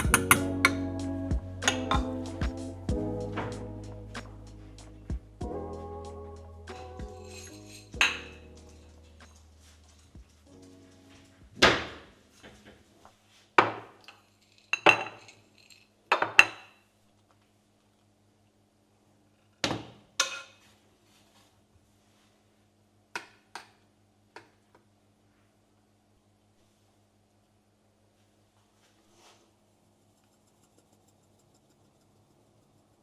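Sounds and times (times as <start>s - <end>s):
dishes and cutlery clinking: 0.0s - 0.5s, 14.1s - 16.6s
faint steady hum: 23.8s - 33.0s.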